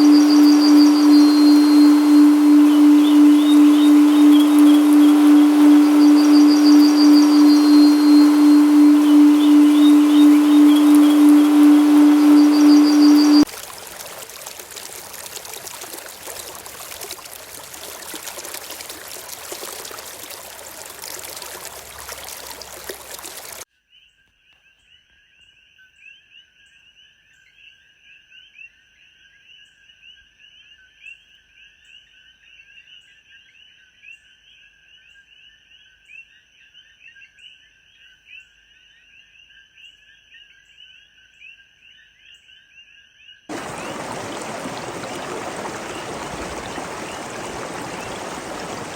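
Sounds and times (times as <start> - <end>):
frogs trilling: 0.0 - 13.5, 14.2 - 23.6, 43.5 - 48.9
rushing stream water: 0.0 - 23.6, 43.5 - 48.9.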